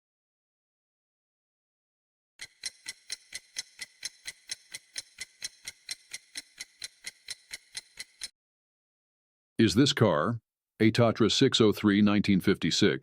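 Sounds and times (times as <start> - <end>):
clock ticking: 2.4 - 8.3.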